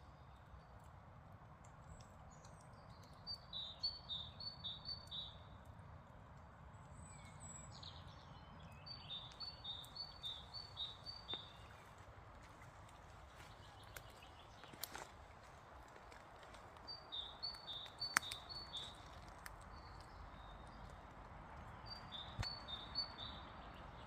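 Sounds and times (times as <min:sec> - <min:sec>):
songbird singing: 0:01.8 - 0:05.7, 0:06.7 - 0:24.0
low outdoor rumble: 0:05.4 - 0:24.0.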